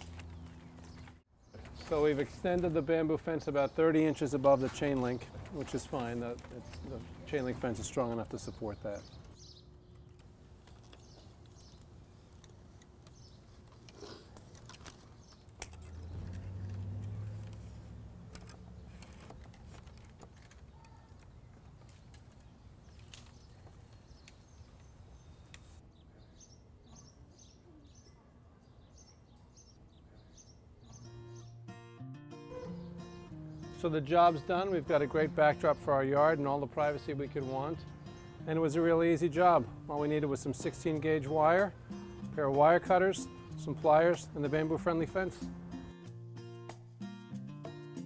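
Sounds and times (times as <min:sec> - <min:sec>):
small birds chirping: 0:00.1 - 0:16.6, 0:17.6 - 0:31.7.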